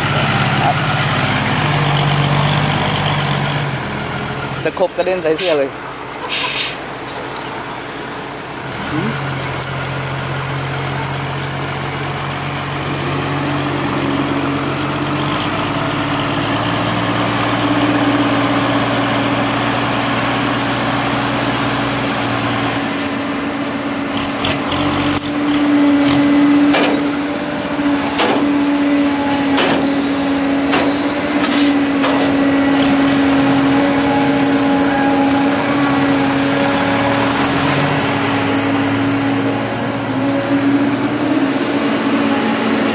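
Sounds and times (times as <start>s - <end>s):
heavy diesel machinery running: 0.0s - 42.9s
sharp metallic knocks: 26.0s - 33.0s.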